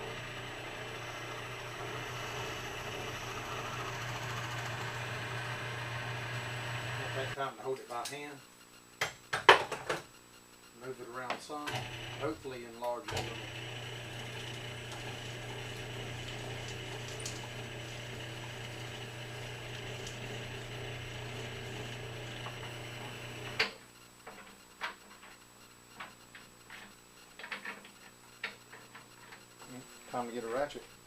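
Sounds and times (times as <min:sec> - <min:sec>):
electric drill running: 0:00.0 - 0:07.4, 0:11.7 - 0:12.4, 0:13.1 - 0:23.6.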